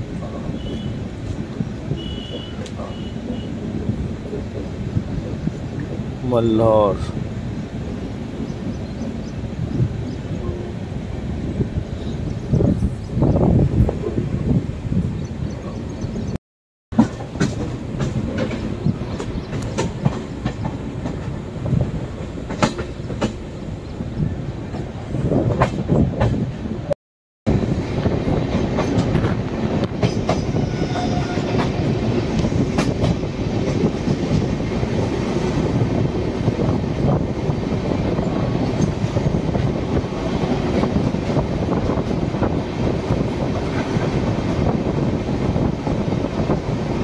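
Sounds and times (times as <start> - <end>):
train coaches rumbling: 0.0 - 47.0
wheels clicking over rail joints: 17.0 - 23.5.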